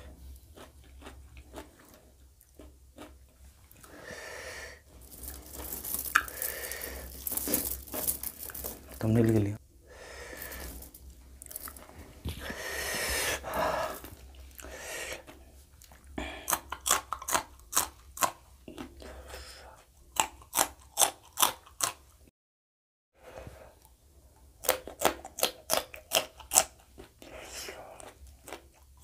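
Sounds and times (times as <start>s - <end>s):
chillies crunching being chewed: 0.0s - 3.9s, 5.0s - 9.0s, 13.3s - 22.2s, 23.8s - 29.0s.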